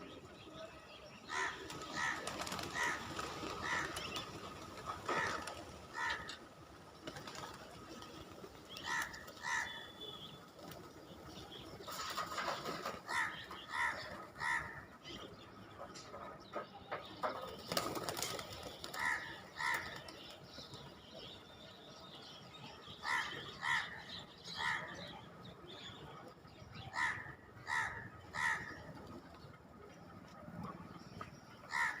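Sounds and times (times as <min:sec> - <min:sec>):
birds calling: 0:00.0 - 0:32.0
wings flapping and rustling: 0:01.6 - 0:09.6, 0:10.3 - 0:14.2, 0:17.3 - 0:20.2.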